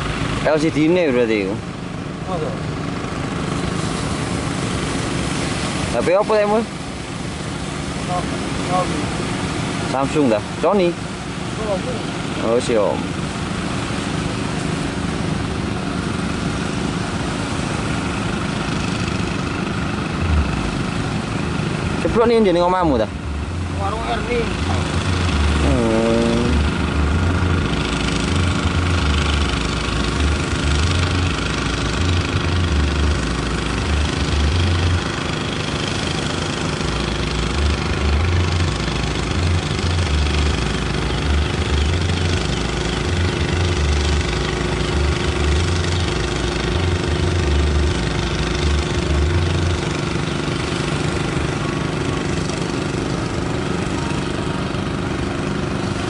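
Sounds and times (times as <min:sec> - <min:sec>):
engine running steadily: 0:00.0 - 0:56.0
low rumble: 0:19.2 - 0:22.1.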